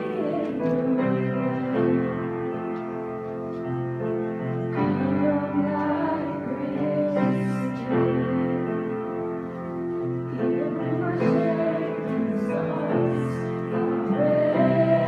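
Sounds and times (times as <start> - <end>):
piano chords: 0.0 - 15.0
person singing: 10.3 - 15.0.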